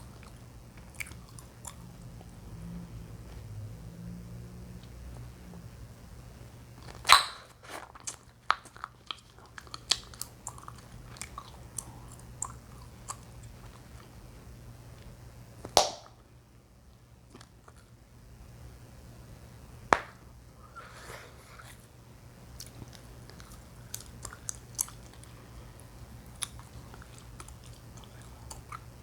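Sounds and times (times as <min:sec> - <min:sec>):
chewing gum popping: 0:00.1 - 0:02.3, 0:06.8 - 0:13.8, 0:22.6 - 0:25.3, 0:26.2 - 0:29.0
wet chewing snaps and clicks: 0:00.1 - 0:02.3, 0:06.8 - 0:14.1, 0:22.6 - 0:29.0.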